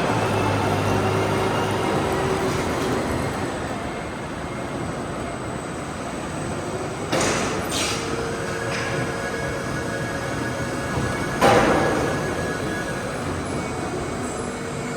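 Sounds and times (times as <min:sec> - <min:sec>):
harvesting machinery running: 0:00.0 - 0:03.9.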